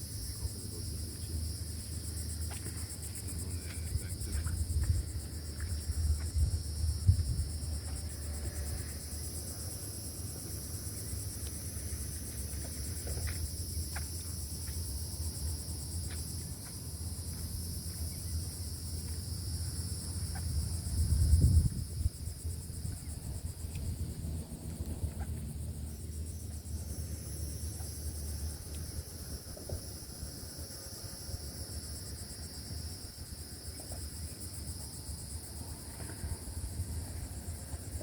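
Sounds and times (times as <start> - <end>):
insect chorus trilling: 0.0 - 38.0
wind rumble on microphone: 2.9 - 27.1.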